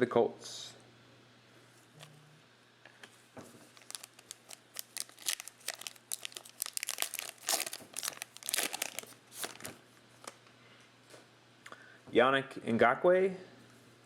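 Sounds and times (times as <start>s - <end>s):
wrapper being torn and crinkled: 3.7s - 10.4s.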